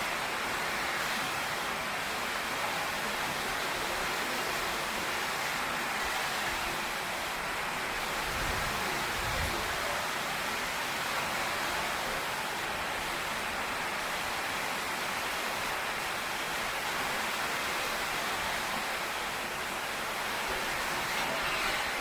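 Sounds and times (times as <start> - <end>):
heavy rain on a tin roof: 0.0 - 22.0.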